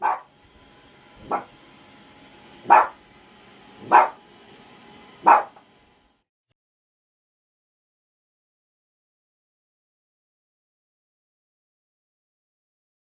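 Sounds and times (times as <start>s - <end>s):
dog barking: 0.0s - 0.3s, 1.2s - 1.6s, 2.6s - 3.0s, 3.8s - 4.2s, 5.2s - 5.6s.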